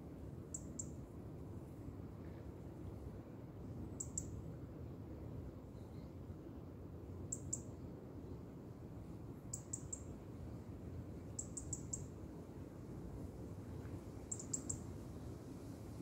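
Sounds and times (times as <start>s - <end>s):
wind rustling through reeds: 12.4s - 16.0s.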